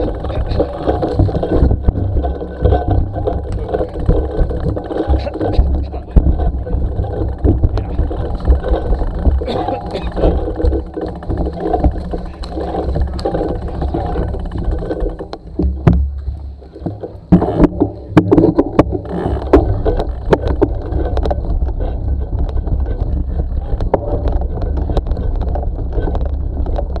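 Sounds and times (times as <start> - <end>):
bicycle rattling over bumps: 0.0 - 27.0
wind rumbling over microphone: 0.0 - 27.0.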